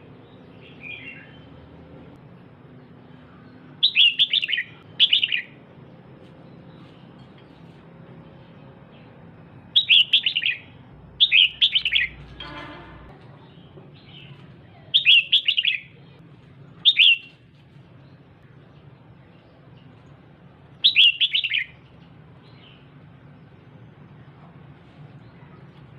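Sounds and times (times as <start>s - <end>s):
bird chirping: 0.2s - 1.6s, 2.8s - 5.6s, 6.2s - 12.4s, 13.4s - 16.2s, 16.8s - 17.4s, 20.8s - 23.7s.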